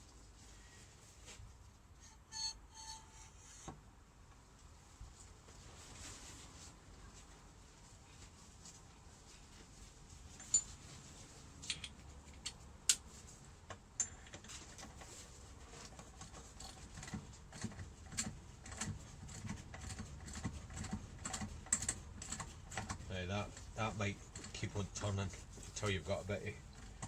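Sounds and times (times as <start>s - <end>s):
hand tools clicking on metal: 16.6s - 26.0s.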